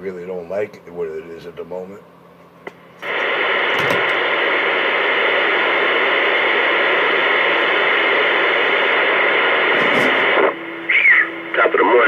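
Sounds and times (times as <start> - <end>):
radio static hiss: 3.0 - 12.0.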